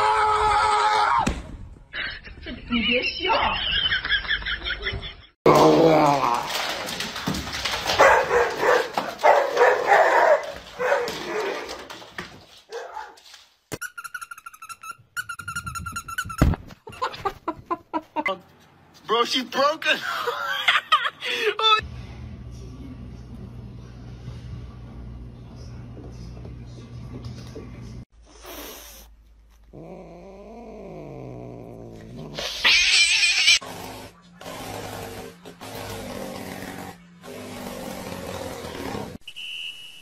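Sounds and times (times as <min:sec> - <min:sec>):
cat screaming: 0:32.4 - 0:33.6
cat yowling: 0:32.5 - 0:33.6
animal trilling call: 0:32.6 - 0:33.6.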